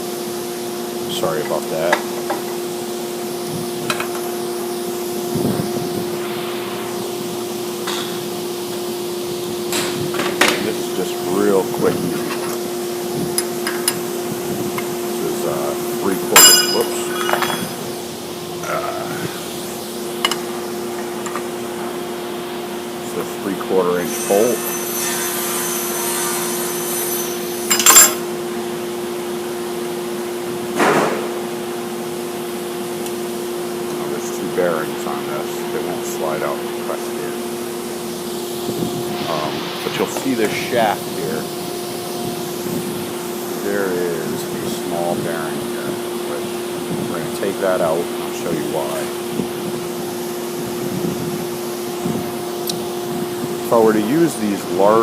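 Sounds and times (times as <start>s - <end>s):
fan motor humming: 0.0s - 55.0s
sharp metallic clink: 16.4s - 17.8s, 27.7s - 28.2s.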